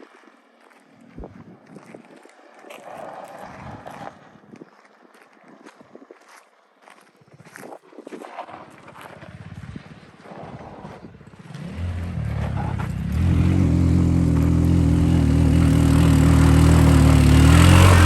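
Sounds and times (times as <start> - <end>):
go-kart engine running: 8.9 - 18.0.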